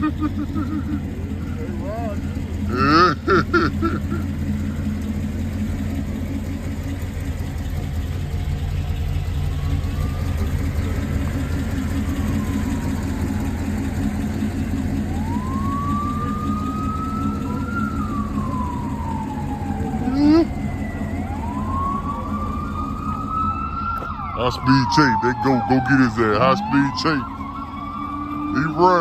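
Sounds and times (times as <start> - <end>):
car engine and road hum: 0.0 - 29.0
siren wailing: 9.0 - 29.0.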